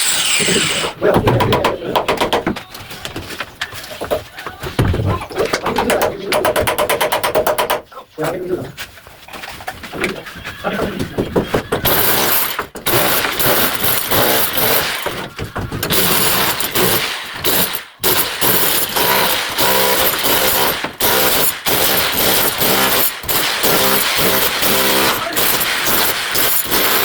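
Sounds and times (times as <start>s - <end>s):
hammer drill hammering: 11.8s - 27.0s.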